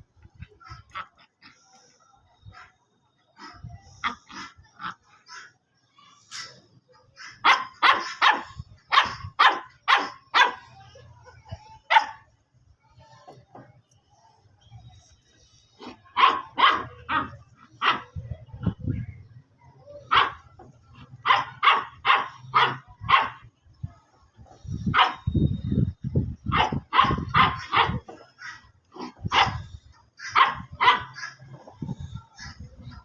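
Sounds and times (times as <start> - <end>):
dogs barking: 7.1 - 10.7, 15.8 - 18.8, 20.0 - 23.5, 24.8 - 25.3, 26.4 - 33.0.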